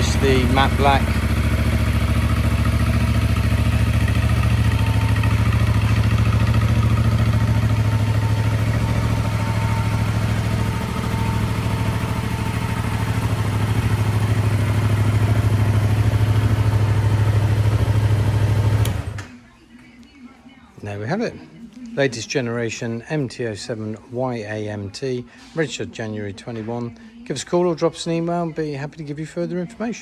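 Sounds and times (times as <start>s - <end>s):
motorcycle engine idling: 0.0s - 19.4s.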